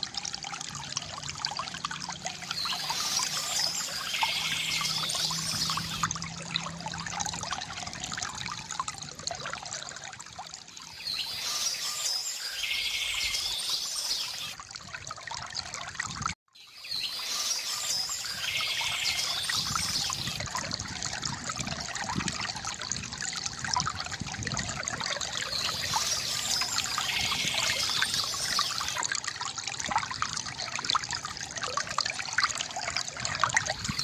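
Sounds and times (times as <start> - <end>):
water trickling from bamboo fountain: 0.0 - 34.0
birds singing: 2.4 - 6.1, 10.8 - 14.6, 16.6 - 20.4, 25.3 - 29.0.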